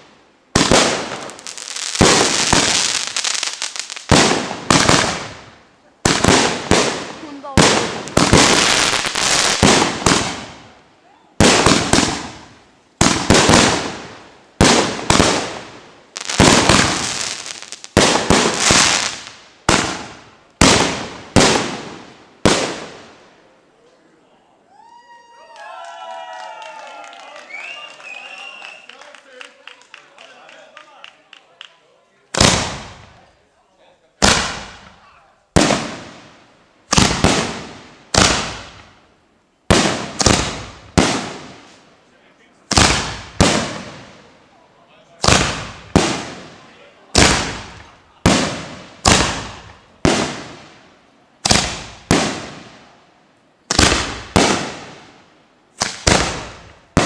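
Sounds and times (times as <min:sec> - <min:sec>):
fireworks banging and crackling: 0:00.0 - 0:10.8, 0:11.4 - 0:23.4, 0:32.3 - 0:33.4, 0:34.2 - 0:39.1, 0:39.7 - 0:41.9, 0:42.6 - 0:44.4, 0:45.1 - 0:53.0, 0:53.6 - 0:57.0.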